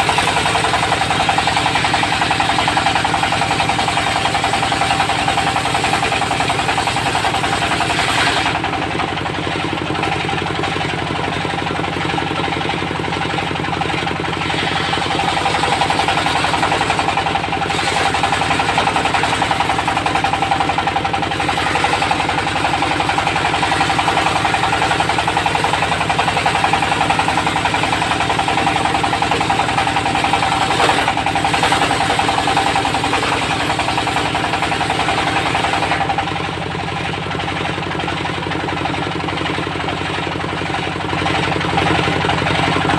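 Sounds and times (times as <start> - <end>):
sawmill diesel engine knocking: 0.0 - 42.9.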